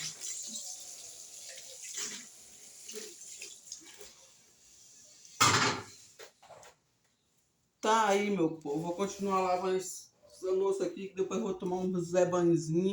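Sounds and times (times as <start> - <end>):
tap water running into sink: 0.0 - 4.2
dishes knocking: 5.4 - 5.9.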